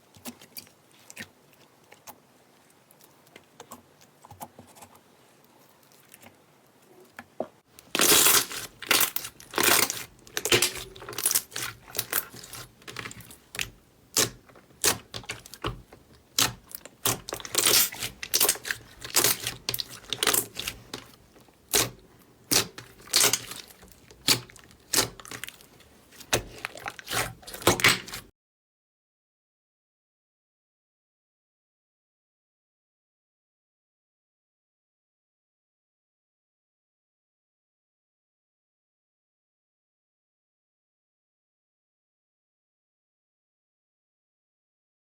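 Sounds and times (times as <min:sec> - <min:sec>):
slime crackling and squelching: 0:07.8 - 0:28.3.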